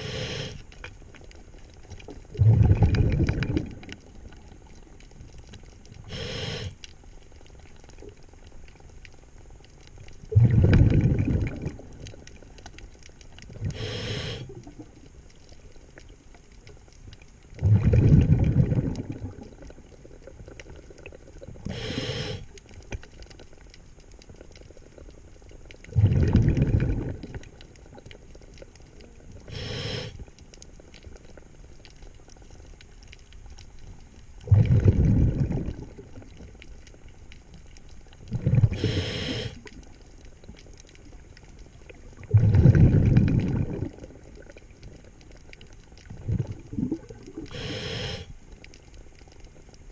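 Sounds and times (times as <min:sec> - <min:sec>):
regulator inhalation hiss: 0:00.0 - 0:00.7, 0:06.0 - 0:06.8, 0:13.7 - 0:14.6, 0:21.7 - 0:22.5, 0:29.4 - 0:30.2, 0:38.7 - 0:39.7, 0:47.5 - 0:48.4
exhaled bubbles rumbling: 0:00.0 - 0:06.8, 0:07.6 - 0:16.6, 0:17.2 - 0:49.9.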